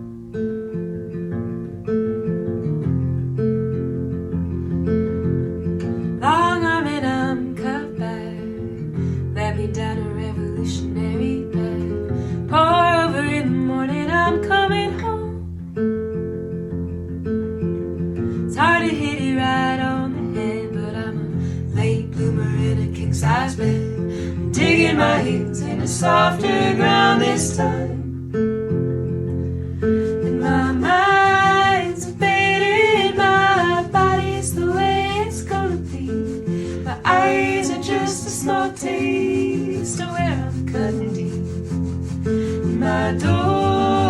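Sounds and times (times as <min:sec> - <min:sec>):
acoustic guitar strumming: 0:00.0 - 0:44.0
person singing wordless phrases: 0:21.8 - 0:28.0, 0:30.2 - 0:41.6, 0:42.6 - 0:44.0.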